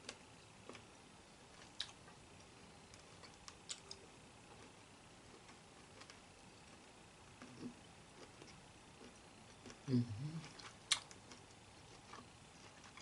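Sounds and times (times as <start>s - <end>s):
chewing: 1.5s - 2.1s, 3.0s - 6.8s, 7.4s - 13.0s.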